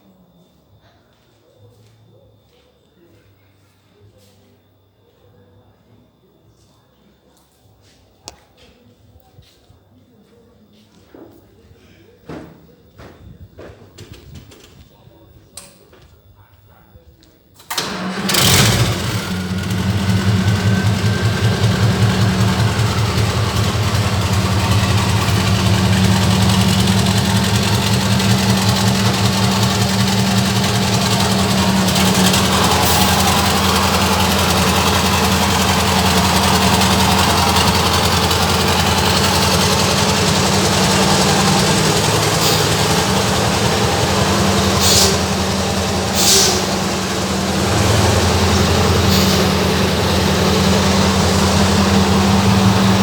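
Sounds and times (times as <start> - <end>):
diesel engine idling: 17.7 - 53.0.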